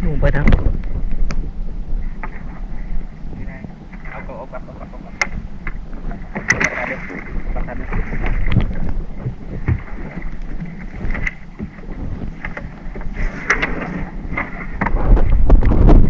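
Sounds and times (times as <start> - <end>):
boat low rumble: 0.0 - 16.0
wind buffeting microphone: 0.0 - 16.0
short knocks: 0.4 - 15.5.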